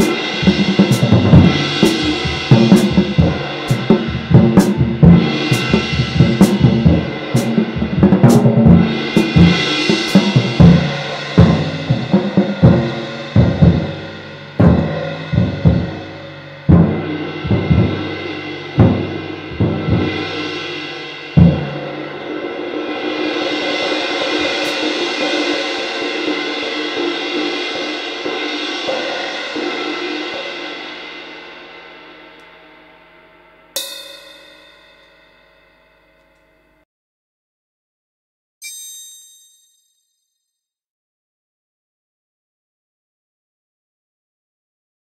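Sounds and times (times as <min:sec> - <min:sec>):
bass and snare drum hits: 0:00.0 - 0:20.4
cymbal wash: 0:00.0 - 0:36.8
stick pinging ride cymbal: 0:00.0 - 0:36.8, 0:38.6 - 0:40.2.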